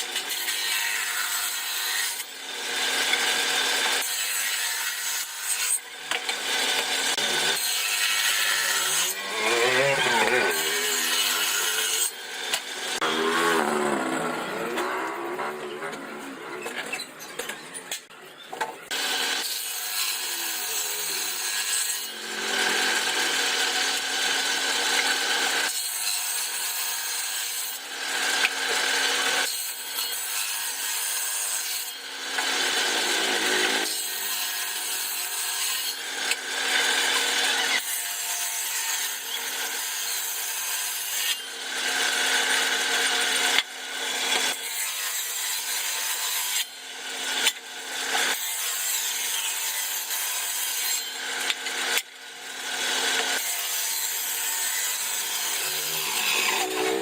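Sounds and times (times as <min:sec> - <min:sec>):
power tool cutting wood: 0:00.0 - 0:57.0.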